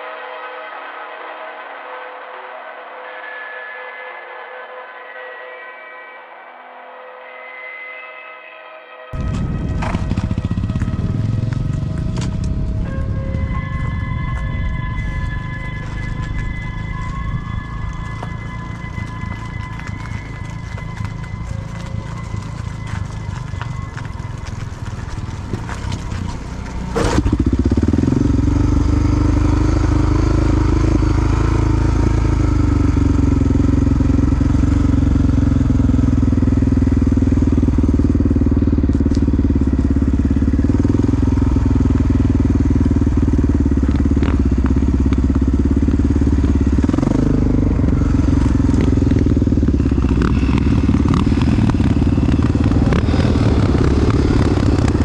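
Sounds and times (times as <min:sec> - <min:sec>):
dirt bike engine running: 0:09.2 - 0:55.0.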